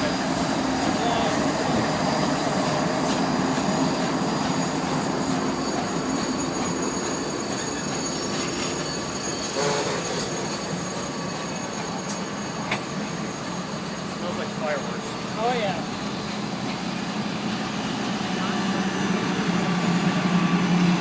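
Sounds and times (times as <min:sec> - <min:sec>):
train cars rumbling on rails: 0:00.0 - 0:21.0
wheel squeal: 0:00.8 - 0:15.4.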